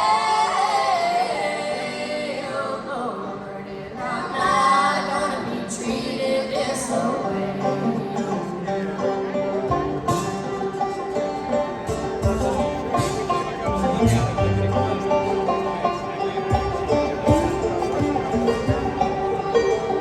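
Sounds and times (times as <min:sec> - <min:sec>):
guitars: 0:04.0 - 0:20.0
live band playing: 0:08.2 - 0:20.0.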